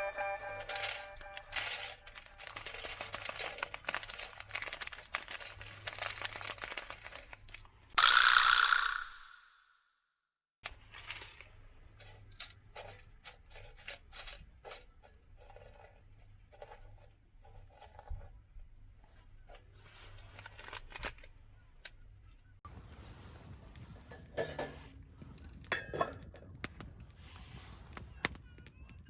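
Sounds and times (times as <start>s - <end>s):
small objects clicking and scraping: 0.1s - 9.5s, 10.6s - 18.4s.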